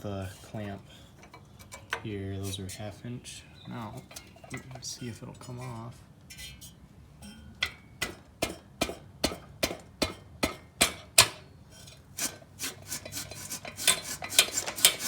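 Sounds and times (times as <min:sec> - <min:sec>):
metal scraping and rubbing: 0:03.8 - 0:07.5, 0:11.7 - 0:15.0
sharp metal knocks: 0:07.2 - 0:11.4.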